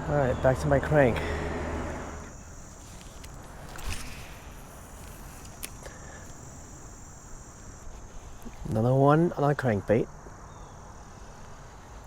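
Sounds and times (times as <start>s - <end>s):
cricket-like insect chorus: 0.0s - 12.0s.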